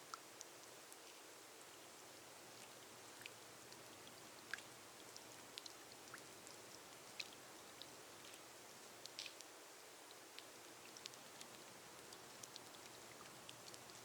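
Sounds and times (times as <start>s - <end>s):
rain hissing on glass roof: 0.0s - 14.0s
raindrops ticking: 10.1s - 14.0s.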